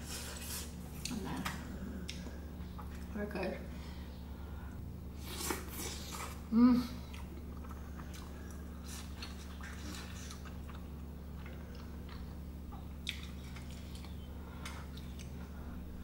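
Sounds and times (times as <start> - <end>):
steady low hum: 0.0 - 16.0
person chewing: 5.2 - 15.7.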